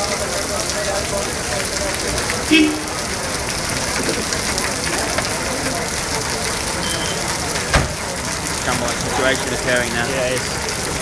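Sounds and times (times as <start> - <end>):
rain falling: 0.0 - 11.0
thump: 7.7 - 8.0.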